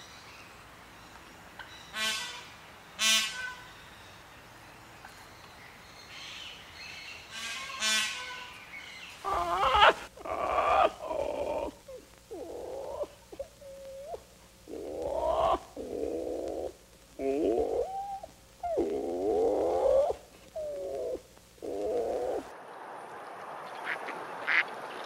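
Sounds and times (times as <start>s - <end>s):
macaw squawking: 12.6s - 22.5s.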